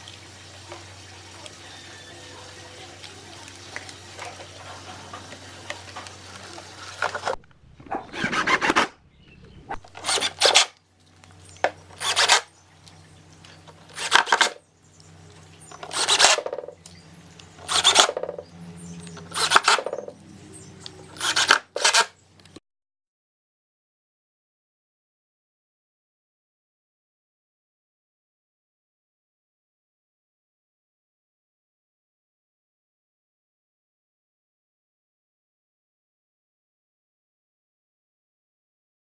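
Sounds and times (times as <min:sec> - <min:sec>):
loud rasping strokes: 0:08.1 - 0:09.0, 0:09.8 - 0:10.8, 0:12.0 - 0:12.5, 0:13.9 - 0:14.6, 0:15.8 - 0:16.7, 0:17.6 - 0:18.4, 0:19.2 - 0:20.1, 0:21.1 - 0:22.2.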